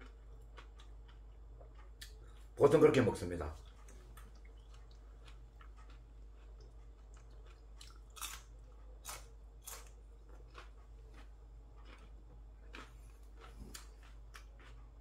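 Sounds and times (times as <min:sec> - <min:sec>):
person chewing food: 0:00.0 - 0:02.6, 0:03.5 - 0:15.0.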